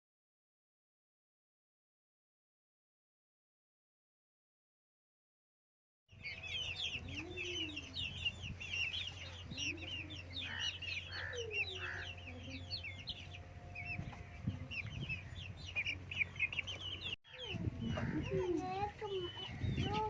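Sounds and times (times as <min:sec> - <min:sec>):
low steady hum: 0:06.2 - 0:19.9
chickens clucking: 0:06.2 - 0:20.0.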